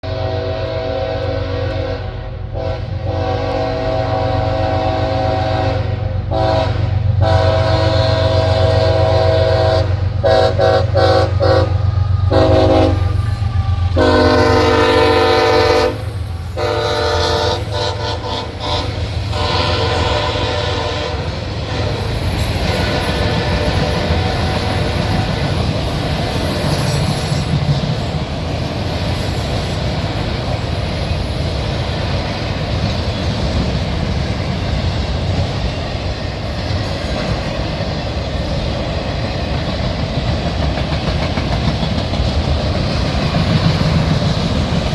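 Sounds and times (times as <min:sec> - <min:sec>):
locomotive air horn blasts: 0:00.0 - 0:25.4
train engine rumble: 0:00.0 - 0:44.9.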